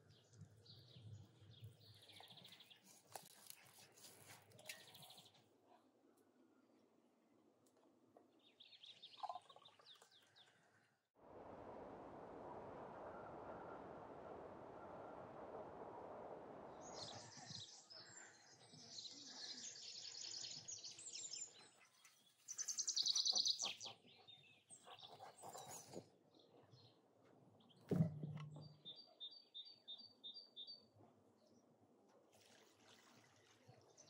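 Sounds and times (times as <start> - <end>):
songbirds singing: 0.0 - 3.6, 8.3 - 10.6, 16.8 - 27.0, 27.6 - 31.6.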